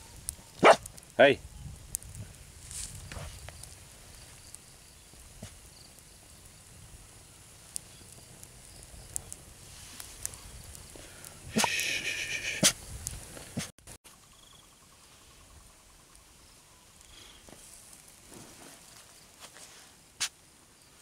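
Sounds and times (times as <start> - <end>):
faint ticks and rustling: 0.2 - 11.4.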